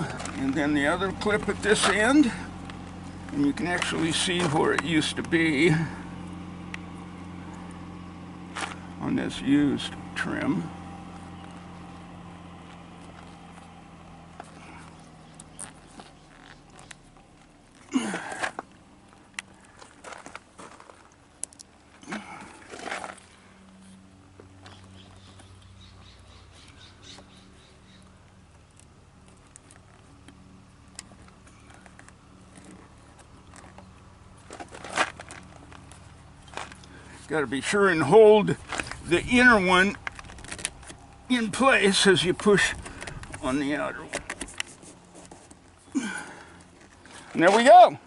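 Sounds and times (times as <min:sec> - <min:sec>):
faint steady hum: 0:00.0 - 0:48.0
clicks and rustles of hands: 0:14.4 - 0:25.7, 0:28.3 - 0:37.2, 0:42.4 - 0:45.9.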